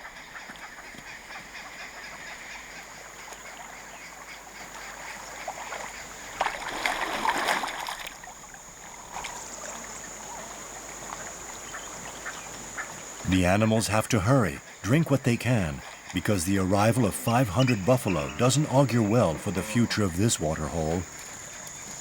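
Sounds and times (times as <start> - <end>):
water splashing: 5.5 - 9.8, 12.5 - 22.0.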